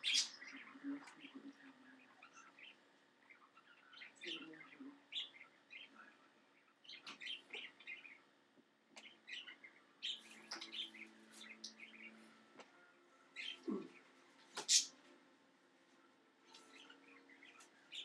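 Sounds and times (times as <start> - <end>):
faint bird chirps: 0.0 - 8.4.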